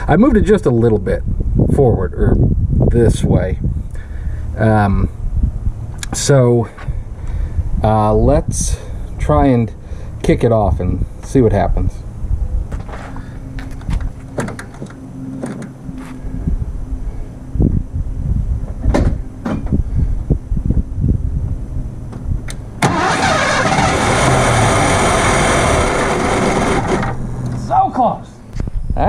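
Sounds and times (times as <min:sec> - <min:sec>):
engine cranking and sputtering: 0:22.5 - 0:27.7.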